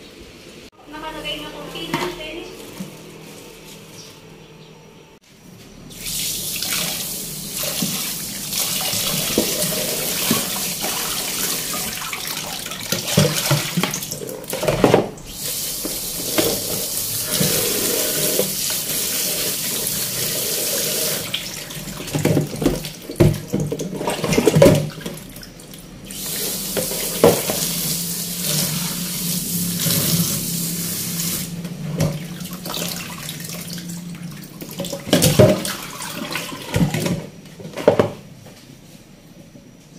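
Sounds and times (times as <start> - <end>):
faucet water running: 5.9 - 37.1.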